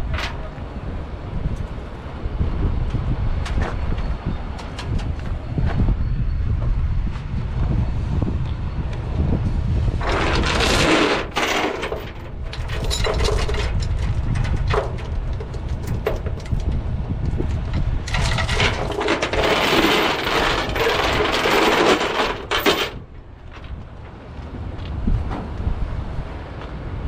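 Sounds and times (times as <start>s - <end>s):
wind rumble on microphone: 0.0s - 27.0s
steel chain rattling and clinking: 10.0s - 16.8s, 17.7s - 23.7s.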